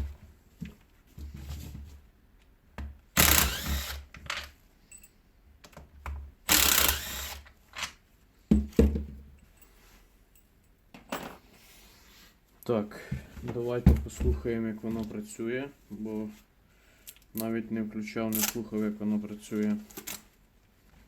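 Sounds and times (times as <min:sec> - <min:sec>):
rasping bursts: 0:03.2 - 0:04.1, 0:06.5 - 0:07.4.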